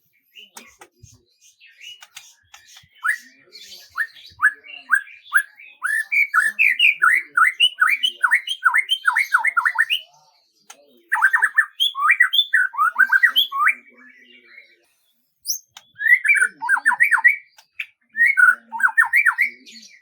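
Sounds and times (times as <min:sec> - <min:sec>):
songbird whistling: 0:01.7 - 0:10.0, 0:11.1 - 0:13.9, 0:15.5 - 0:20.0.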